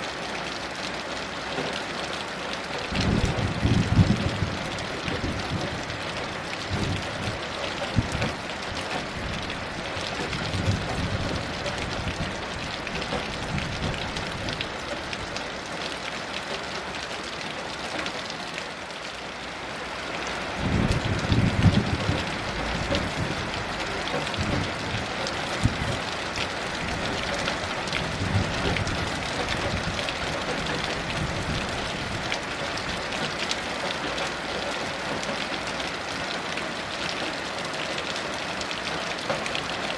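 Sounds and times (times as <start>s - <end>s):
heavy rain falling: 0.0s - 39.9s
distant thunder rumbling: 20.6s - 26.1s.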